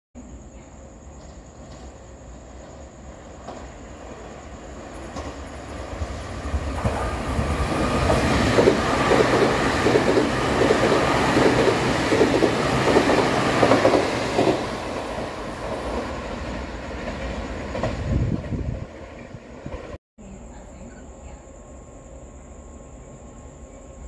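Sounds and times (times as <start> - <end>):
train wheels rumbling on rails: 0.7 - 20.0
clickety-clack over rail joints: 1.1 - 20.0.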